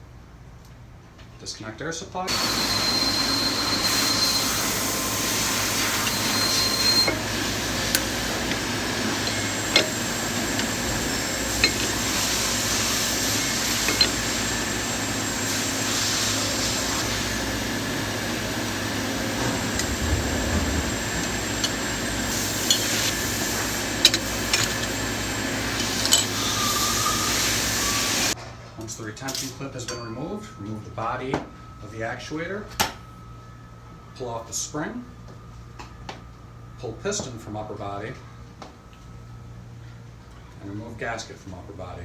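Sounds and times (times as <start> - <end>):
steady background hiss: 0.0 - 42.0
metallic clicks of tools: 24.0 - 25.0.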